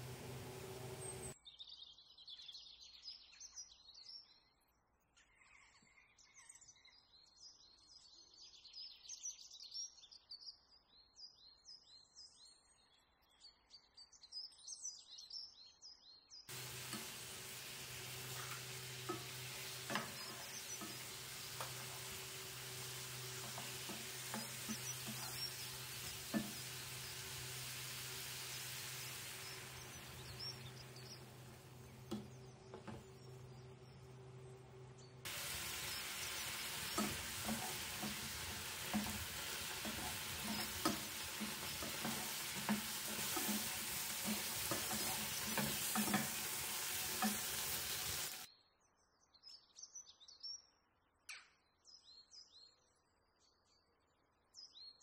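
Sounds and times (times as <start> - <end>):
chicken sizzling in a frying pan: 0.0 - 1.4, 16.5 - 48.5
spatula knocking: 16.5 - 33.2, 35.3 - 48.4.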